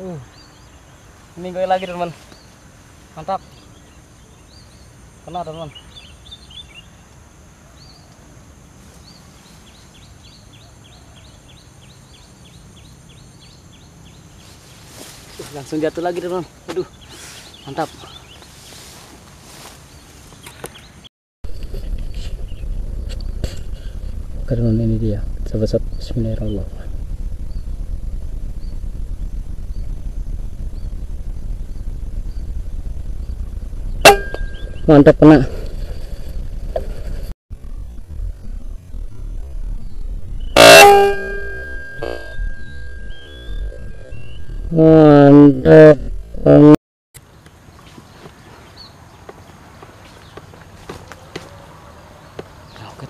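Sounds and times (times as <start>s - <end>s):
bird chirping: 0.0s - 8.3s, 8.9s - 21.1s, 31.6s - 36.2s, 37.6s - 46.0s
low outdoor background noise: 0.0s - 53.0s
steady low rumble: 21.5s - 46.8s.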